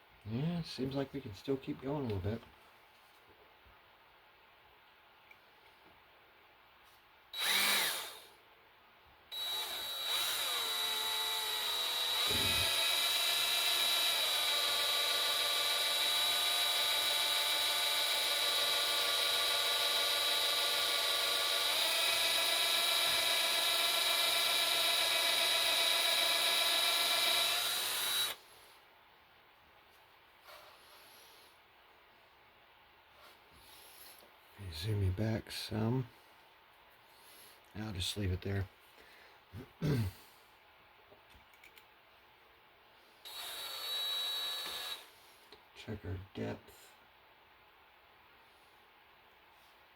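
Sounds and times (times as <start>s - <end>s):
electric drill whining: 7.4s - 8.3s, 9.3s - 28.4s, 43.2s - 45.1s.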